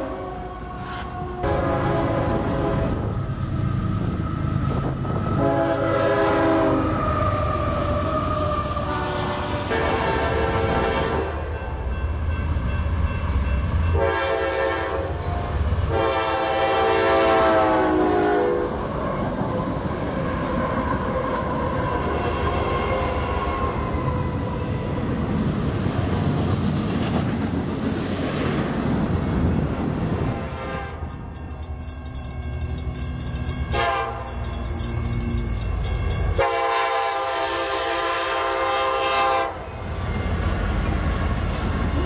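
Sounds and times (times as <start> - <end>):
train horn blasts: 0.0 - 3.1, 4.7 - 7.1, 8.7 - 11.7, 13.8 - 18.9, 30.3 - 31.2, 33.6 - 39.7
diesel locomotives passing: 0.0 - 42.0
train wheels rumbling over rails: 0.0 - 42.0.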